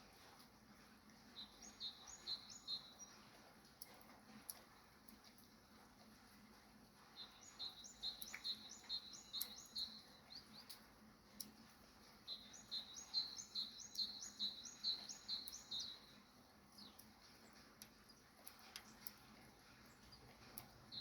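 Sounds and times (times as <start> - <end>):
songbird chirping: 1.3 - 3.9, 7.1 - 10.9, 12.0 - 19.2, 19.8 - 21.0.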